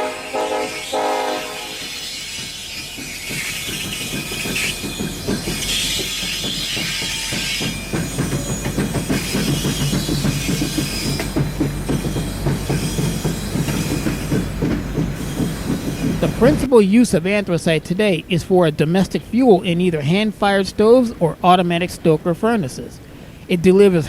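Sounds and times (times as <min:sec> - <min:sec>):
train wheel squeal: 0:00.0 - 0:16.7
train rumble: 0:00.0 - 0:24.0
wheels clicking over rail joints: 0:00.0 - 0:24.0.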